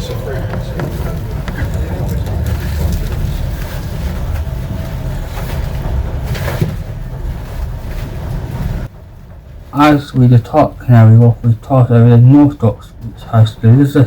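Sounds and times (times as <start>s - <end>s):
train low rumble: 0.0s - 14.0s.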